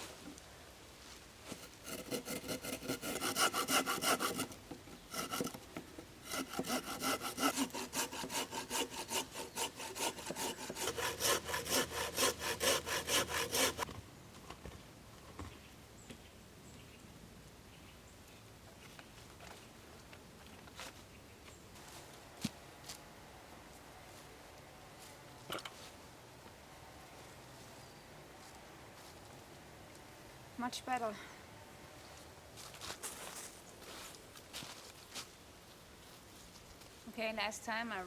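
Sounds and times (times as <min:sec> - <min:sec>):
hand saw cutting wood: 0:01.5 - 0:13.9.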